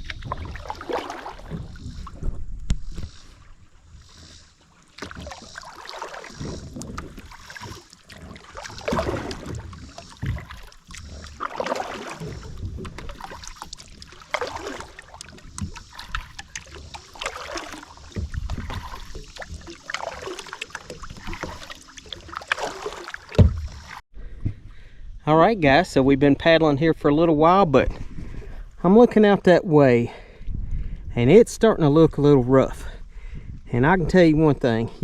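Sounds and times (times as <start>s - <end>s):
wind rumble on microphone: 0.0s - 4.4s, 6.3s - 11.4s, 12.2s - 13.6s, 18.1s - 19.7s, 23.4s - 29.2s, 29.8s - 35.0s
paddle splashing through water: 0.0s - 24.0s.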